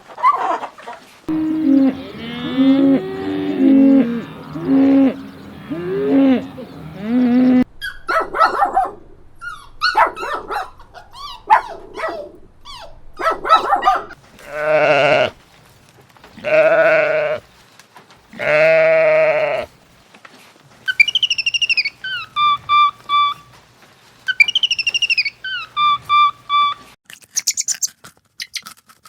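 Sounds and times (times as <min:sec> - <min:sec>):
dog yapping: 0:07.8 - 0:14.2
goat bleating: 0:14.4 - 0:15.4, 0:16.4 - 0:17.4, 0:18.3 - 0:19.7
fast-trilling call: 0:24.3 - 0:27.9.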